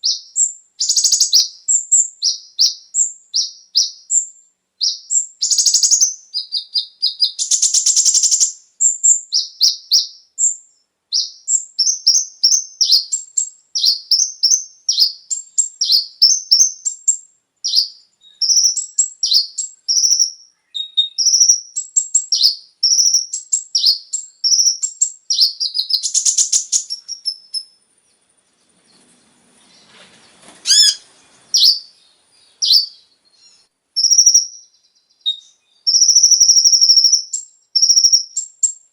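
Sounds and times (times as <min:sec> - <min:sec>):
sunbird chattering song: 0:00.0 - 0:38.9
buzzy bird trills: 0:17.7 - 0:27.7, 0:28.4 - 0:38.8.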